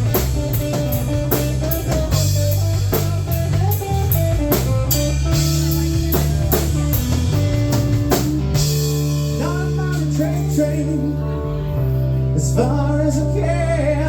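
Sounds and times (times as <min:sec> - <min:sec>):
drum kit beat: 0:00.0 - 0:10.8
electric guitar playing: 0:00.0 - 0:14.0.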